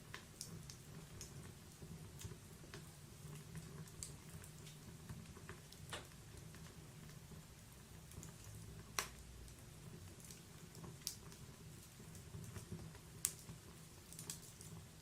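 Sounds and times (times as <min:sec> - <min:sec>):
sharp pops of burning wood: 0:02.1 - 0:06.5, 0:08.1 - 0:09.3, 0:10.1 - 0:14.8.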